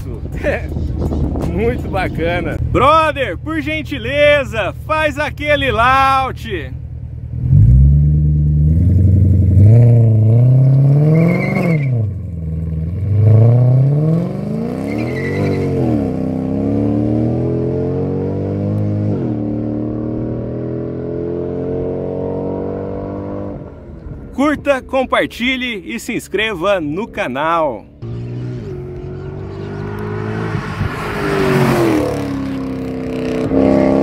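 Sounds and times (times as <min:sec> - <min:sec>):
car engine accelerating hard: 0:07.2 - 0:24.2, 0:28.0 - 0:34.0.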